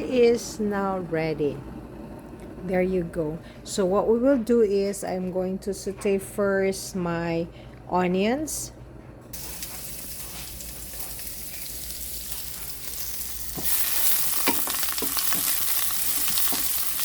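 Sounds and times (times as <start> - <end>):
onions sizzling in oil: 9.4 - 17.0.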